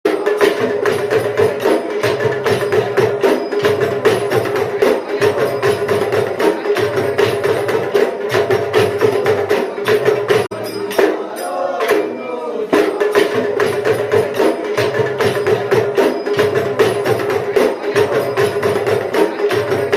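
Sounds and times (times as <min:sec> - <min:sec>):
drum and jingle strikes: 0:00.1 - 0:19.9.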